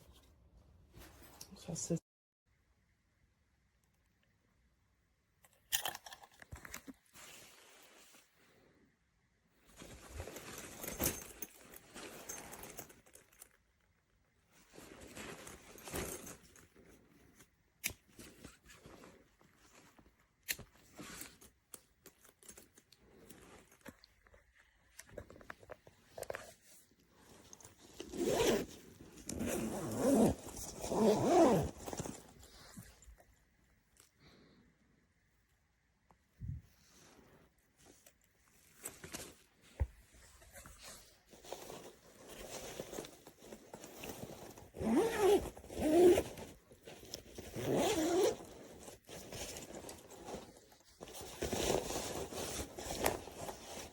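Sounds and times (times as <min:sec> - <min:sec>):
bag fabric handled: 0:09.6 - 0:33.3, 0:36.9 - 0:53.9
backpack zipper opening and closing: 0:27.9 - 0:32.3, 0:42.6 - 0:53.9.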